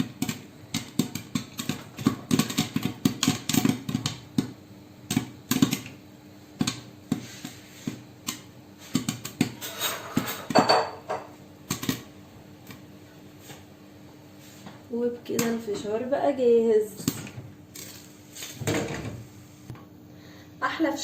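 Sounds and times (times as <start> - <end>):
popcorn popping in a pot: 0.0 - 12.9, 14.9 - 18.9.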